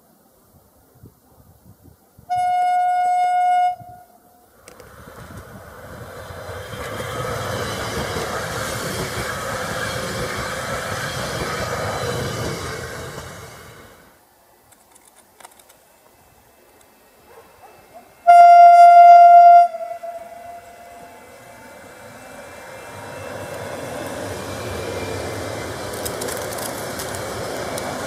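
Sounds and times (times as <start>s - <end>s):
train horn blast: 2.3s - 4.2s, 18.2s - 21.3s
passing train running noise: 2.3s - 28.0s.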